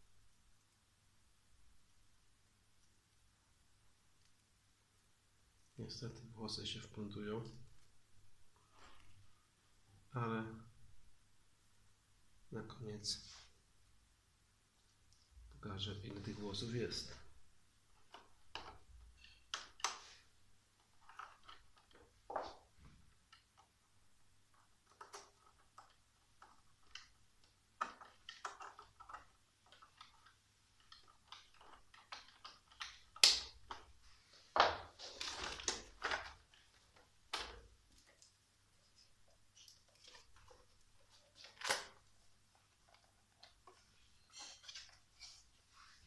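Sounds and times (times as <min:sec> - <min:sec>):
scraping and rustling: 0:24.5 - 0:46.0.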